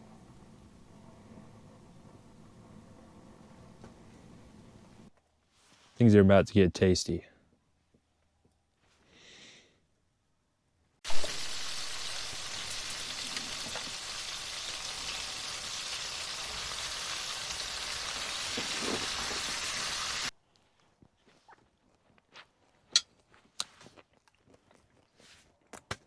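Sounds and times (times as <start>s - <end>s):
food frying sizzle: 11.1s - 20.3s.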